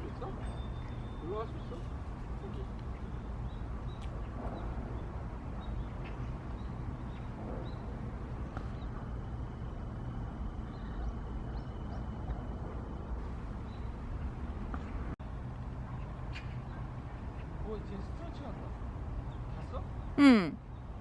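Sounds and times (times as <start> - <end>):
thin steady whine: 6.8 - 15.2.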